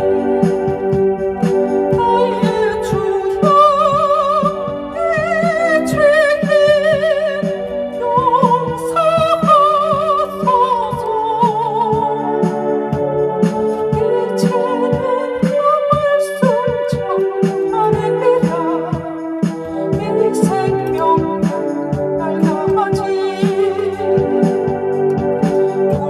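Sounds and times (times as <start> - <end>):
electronic keyboard playing a hymn: 0.0 - 26.0.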